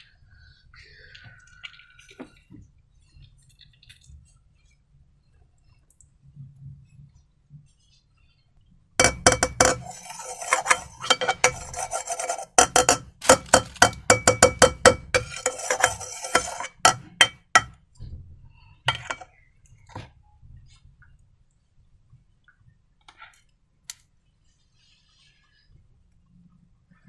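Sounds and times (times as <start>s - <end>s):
utensil stirring slime in bowl: 9.0s - 17.8s, 18.9s - 19.3s.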